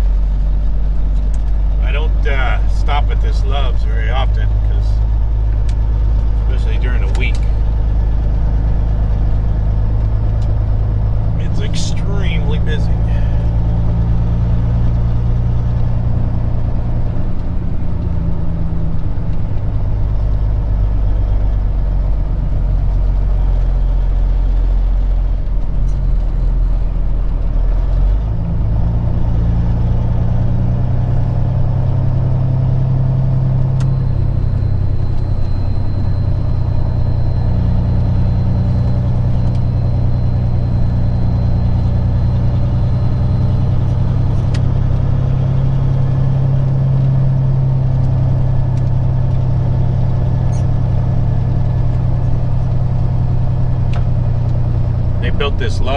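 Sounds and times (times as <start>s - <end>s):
diesel truck engine running: 0.0s - 55.9s
faint steady high tone: 33.7s - 43.6s.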